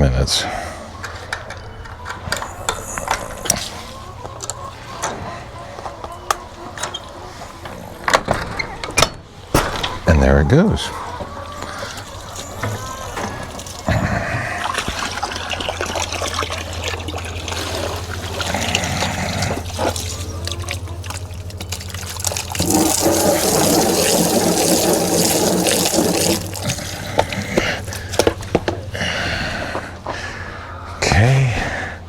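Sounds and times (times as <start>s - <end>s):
water splashing from hose: 11.7s - 28.2s.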